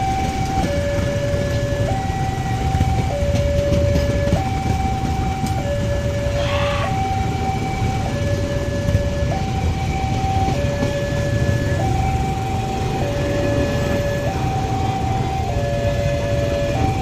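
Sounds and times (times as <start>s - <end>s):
two-tone warning siren: 0.0s - 17.0s.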